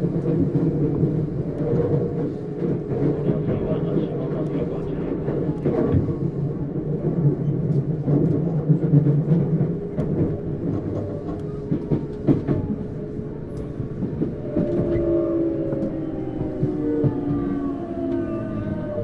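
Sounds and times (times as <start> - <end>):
rail joint clicks: 0.0 - 19.0
train wheel and rail noise: 0.0 - 19.0
traction inverter whine: 13.2 - 19.0.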